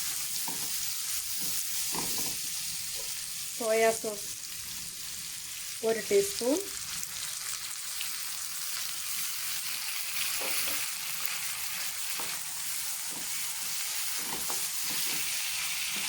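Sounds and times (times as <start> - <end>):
stirring in a pan: 0.0 - 3.9, 9.1 - 16.0
vegetables sizzling in a pan: 0.0 - 16.0.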